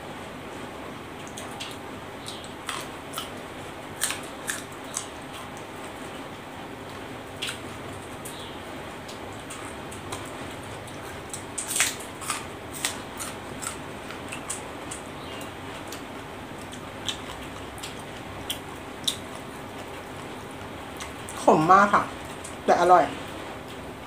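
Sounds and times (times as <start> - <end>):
crisp crunching chewing: 1.2 - 6.0, 9.0 - 21.5.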